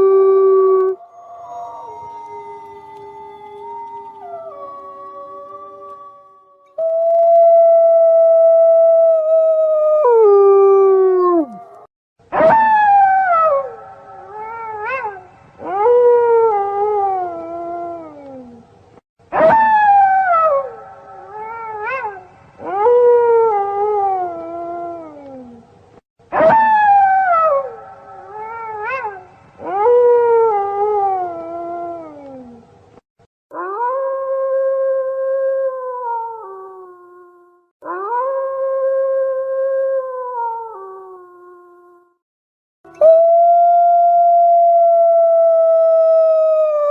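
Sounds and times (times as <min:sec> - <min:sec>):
wolves howling: 0:00.0 - 0:11.9.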